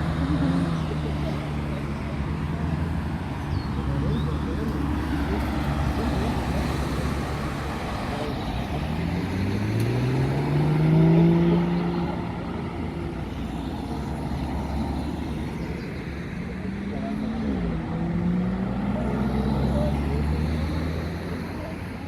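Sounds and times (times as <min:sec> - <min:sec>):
car engine pulling away: 0:00.0 - 0:13.3.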